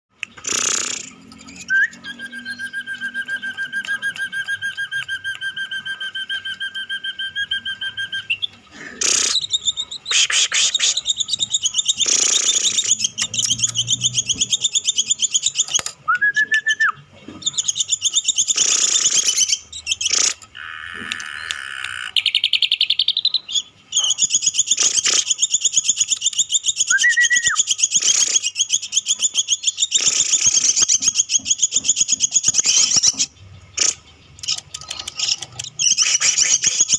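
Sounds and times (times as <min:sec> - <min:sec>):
bird trilling: 0:00.3 - 0:36.9
short rising whistles: 0:00.5 - 0:08.4.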